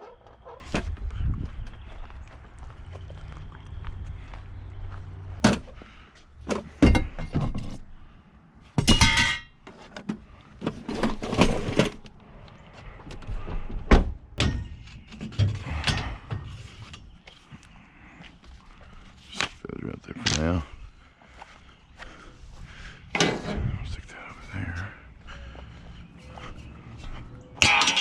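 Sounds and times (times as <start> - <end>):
tools clunking and knocking: 5.4 - 5.8, 6.4 - 7.9, 8.8 - 12.1, 13.1 - 17.1, 23.1 - 23.6, 27.5 - 28.0
ringing metallic clang: 27.6 - 28.0.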